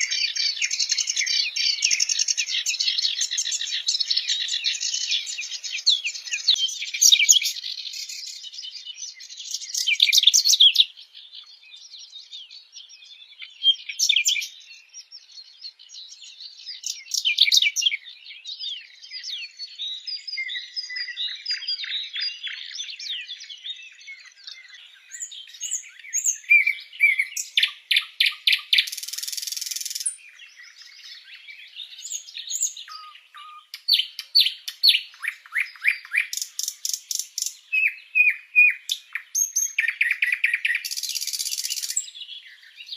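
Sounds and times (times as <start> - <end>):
songbirds singing and chirping: 0.0 - 42.9.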